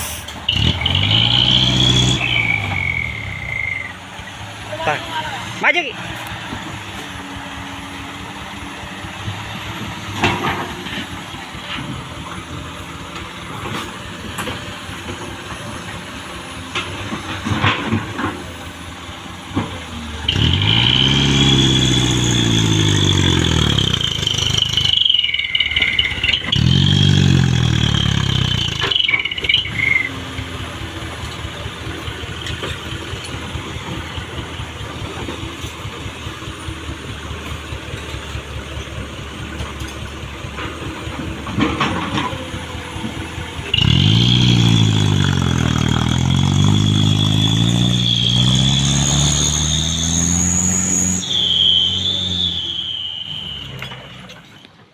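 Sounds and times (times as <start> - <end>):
high squeal: 0.0 - 4.0, 20.2 - 30.2, 43.6 - 54.8
diesel engine revving: 0.0 - 54.9.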